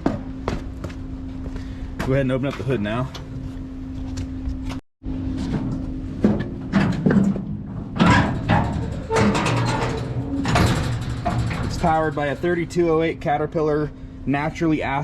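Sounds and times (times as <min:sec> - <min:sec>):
metal hood banging and clattering: 0:05.4 - 0:13.0.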